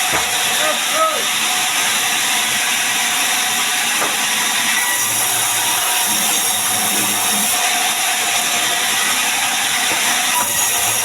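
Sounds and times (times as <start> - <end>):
power saw cutting timber: 0.0 - 11.0.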